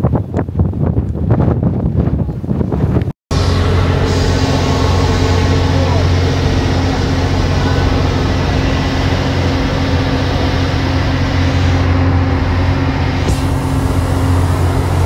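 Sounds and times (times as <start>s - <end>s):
wind and water rushing: 2.3s - 15.0s
ferry engine drone: 3.3s - 15.0s.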